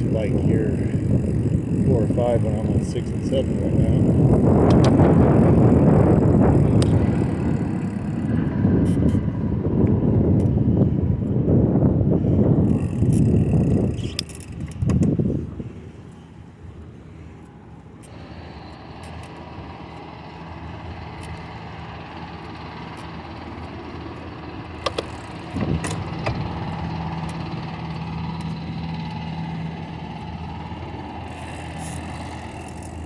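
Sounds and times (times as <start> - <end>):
bicycle riding at speed: 0.0 - 33.0
low steady hum: 0.0 - 33.0
sharp clicks: 6.6 - 9.3, 13.0 - 15.2.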